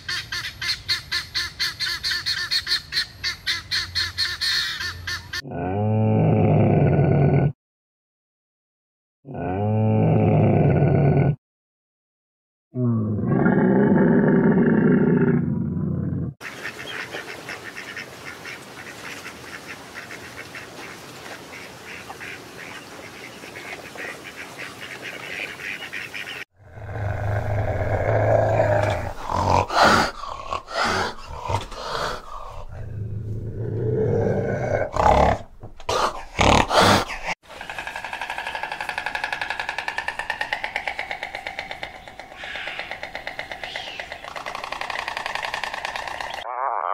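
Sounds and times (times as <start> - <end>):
camel grunting: 26.6 - 37.4
wild cat growling and hissing: 26.6 - 37.4.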